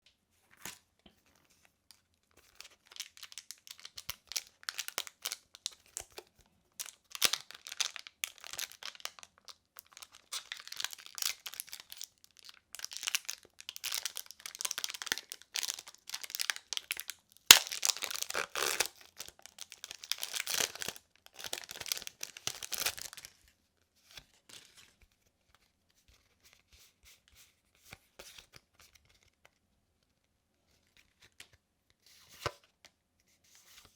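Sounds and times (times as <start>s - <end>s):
foil wrapper crinkling and tearing: 2.5s - 6.2s, 6.8s - 23.4s.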